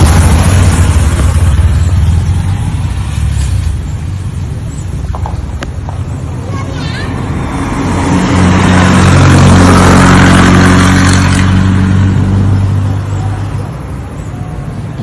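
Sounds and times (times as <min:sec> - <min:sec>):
vehicle engine passing by: 0:06.6 - 0:14.1.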